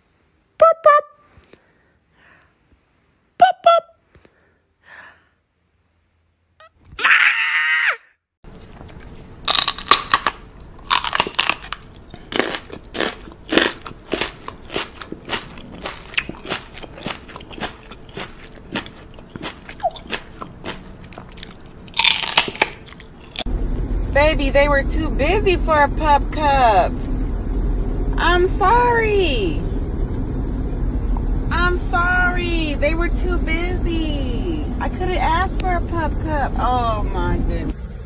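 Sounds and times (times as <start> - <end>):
crunchy chewing: 8.5 - 23.5.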